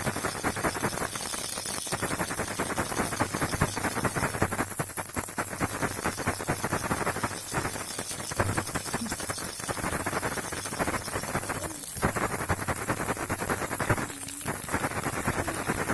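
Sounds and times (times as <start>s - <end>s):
baby rattle shaken: 0.0s - 15.9s
faint low hum: 13.1s - 15.9s.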